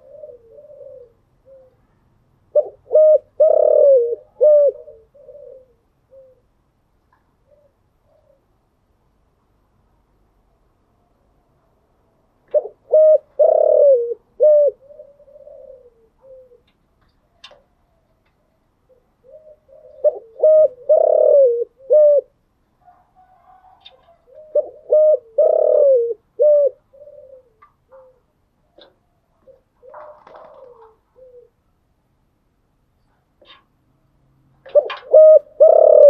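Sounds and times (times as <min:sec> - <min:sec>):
dove cooing: 0:00.0 - 0:01.9, 0:02.5 - 0:06.5, 0:07.4 - 0:08.5, 0:12.5 - 0:31.6, 0:34.6 - 0:36.0.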